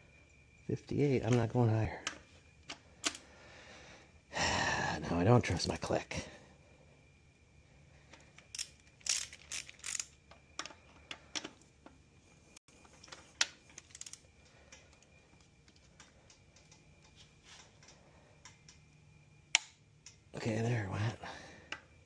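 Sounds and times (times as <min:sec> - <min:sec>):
torque wrench clicking: 0:08.4 - 0:10.7, 0:13.4 - 0:14.2.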